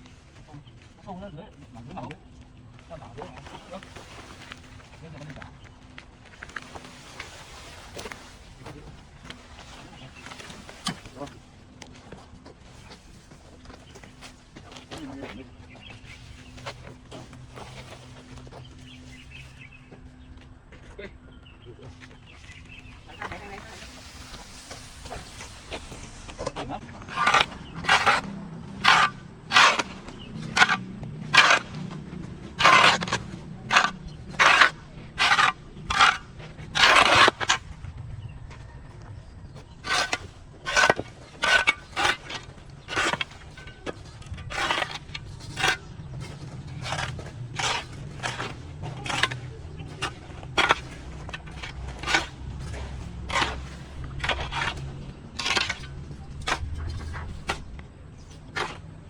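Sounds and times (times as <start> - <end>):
hand tool scraping through grass: 3.4 - 5.0, 6.3 - 19.8, 22.4 - 37.8, 39.7 - 59.0.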